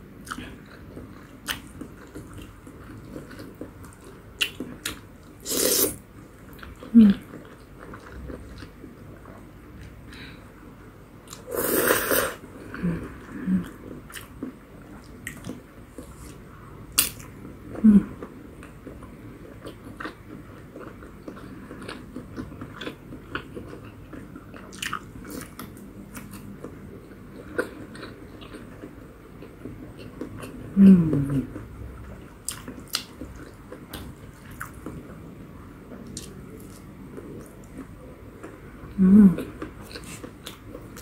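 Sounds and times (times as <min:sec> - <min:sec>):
person chewing noodles: 0:00.2 - 0:10.2, 0:11.2 - 0:16.4, 0:18.6 - 0:31.6, 0:32.4 - 0:35.0, 0:39.4 - 0:41.0
loud noodle slurp: 0:05.4 - 0:06.0, 0:11.5 - 0:12.4.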